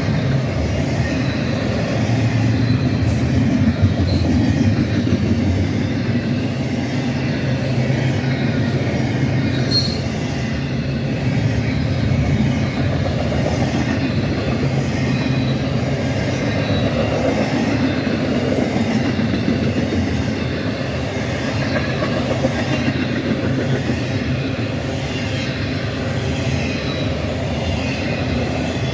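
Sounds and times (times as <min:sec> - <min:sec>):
train wheels rumbling on rails: 0:00.0 - 0:28.9
wheel squeals: 0:00.0 - 0:28.9.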